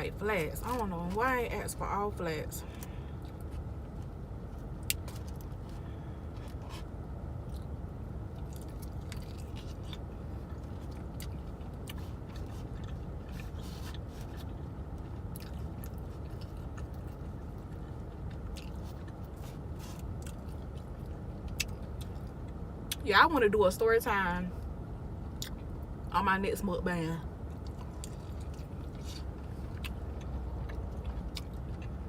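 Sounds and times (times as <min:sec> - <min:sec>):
chewing and mouth smacking: 0:06.4 - 0:07.7, 0:08.3 - 0:23.0, 0:25.4 - 0:25.9, 0:27.4 - 0:32.0.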